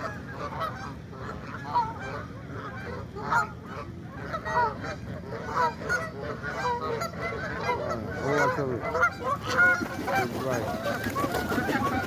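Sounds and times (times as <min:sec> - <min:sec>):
flock of birds calling: 0:00.0 - 0:12.0.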